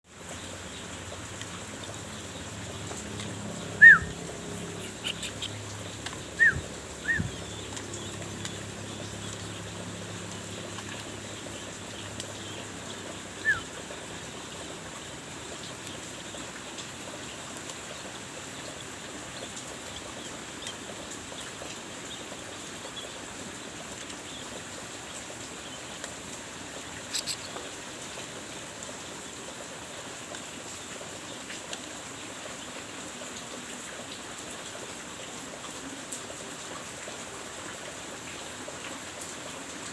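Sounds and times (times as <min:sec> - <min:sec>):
songbird chirps: 0:00.1 - 0:28.4.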